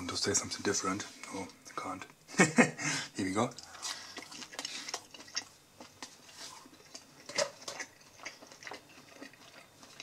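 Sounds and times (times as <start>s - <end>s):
person chewing: 3.5s - 10.0s.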